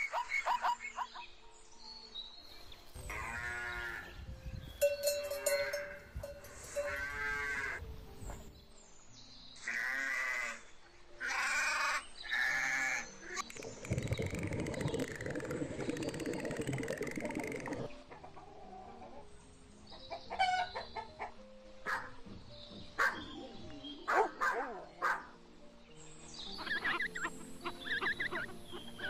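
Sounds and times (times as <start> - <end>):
sheep bleating: 9.6 - 10.6.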